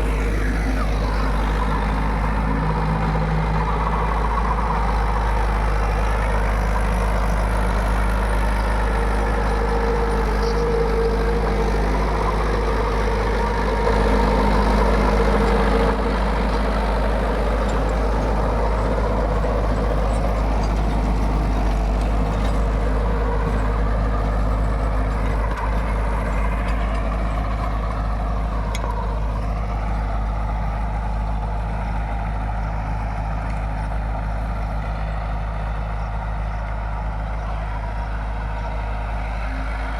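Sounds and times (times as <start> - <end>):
rotavator whine: 0.0 - 39.9
tractor diesel engine running: 0.0 - 39.9.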